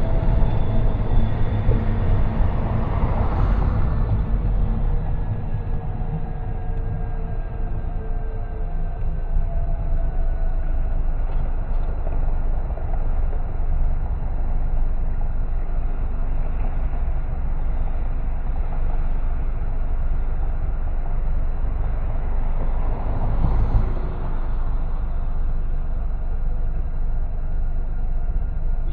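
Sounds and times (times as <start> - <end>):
car road and tyre noise: 0.0 - 28.9.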